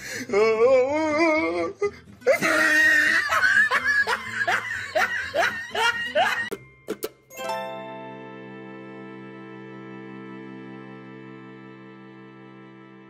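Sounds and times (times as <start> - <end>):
person laughing hard: 2.2 - 6.6.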